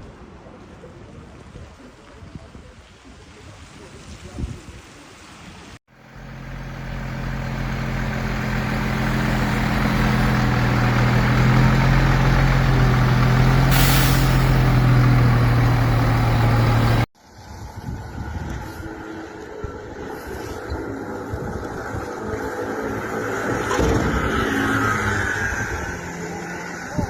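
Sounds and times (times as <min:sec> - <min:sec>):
heavy vehicle engine humming: 0:05.9 - 0:17.1
burst of hiss: 0:13.6 - 0:14.9.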